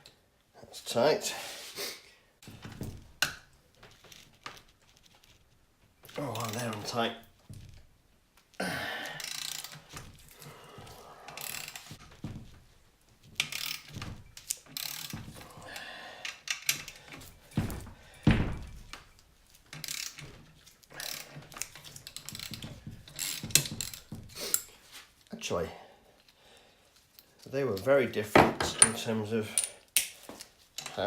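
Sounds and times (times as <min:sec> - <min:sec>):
ratchet clicking: 0:09.2 - 0:09.8, 0:19.8 - 0:20.2.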